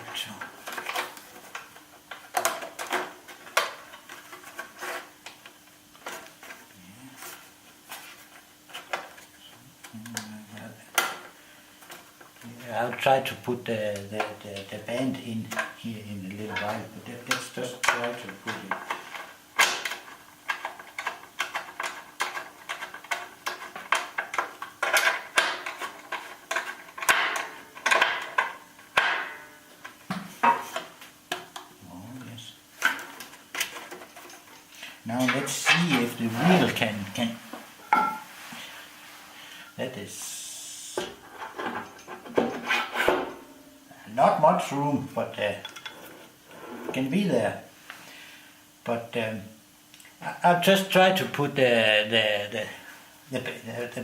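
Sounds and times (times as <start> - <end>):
faint steady hum: 0.0 - 54.0
metal tools clinking and knocking: 37.8 - 38.3.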